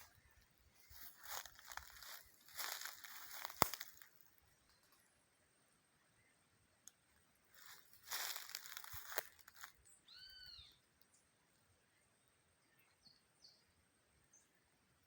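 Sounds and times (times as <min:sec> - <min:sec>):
rustling: 0:00.8 - 0:04.3, 0:07.5 - 0:09.7
faint bird chirps: 0:09.8 - 0:14.7.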